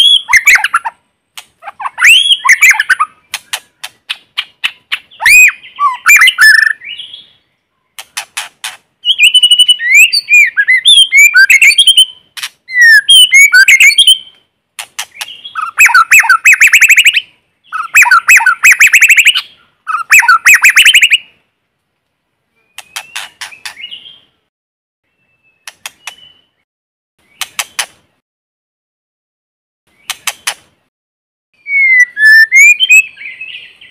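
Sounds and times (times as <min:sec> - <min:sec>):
songbird singing whistled phrases: 0:00.0 - 0:00.8, 0:01.8 - 0:03.6, 0:04.6 - 0:07.5, 0:09.0 - 0:14.4, 0:15.2 - 0:21.3, 0:25.1 - 0:26.6, 0:31.6 - 0:33.9.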